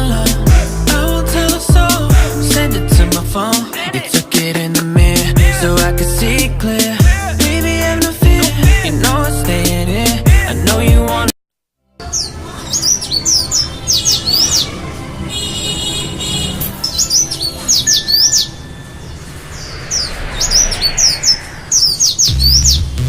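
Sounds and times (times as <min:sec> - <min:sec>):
small songbird chirping: 0:16.8 - 0:22.9.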